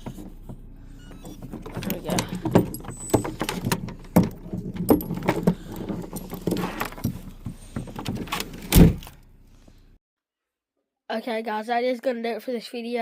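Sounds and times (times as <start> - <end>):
dog collars jangling: 1.1 - 8.3.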